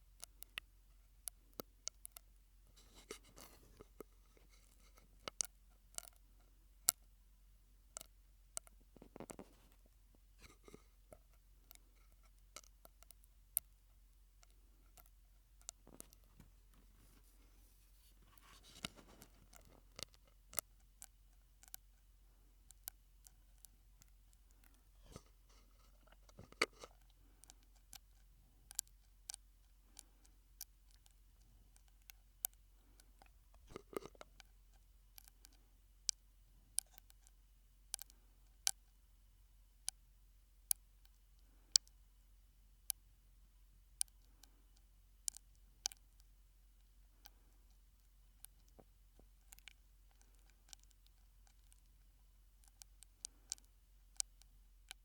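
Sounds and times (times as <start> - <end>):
soft mouth noises: 8.0 - 13.2, 23.2 - 32.1, 32.8 - 35.6
mouth clicks and pops: 32.5 - 34.5.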